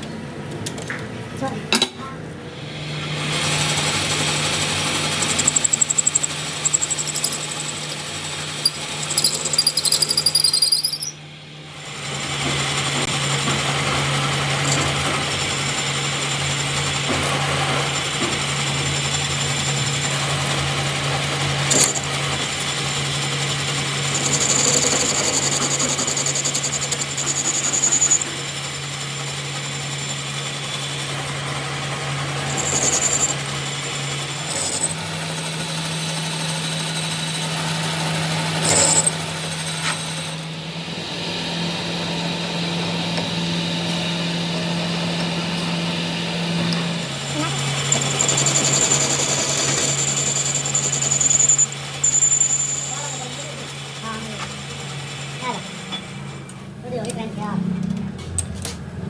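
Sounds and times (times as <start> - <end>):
electric power tool motor hum: 2.6 - 11.2, 11.8 - 56.4
high-pitched squeals: 8.6 - 11.2.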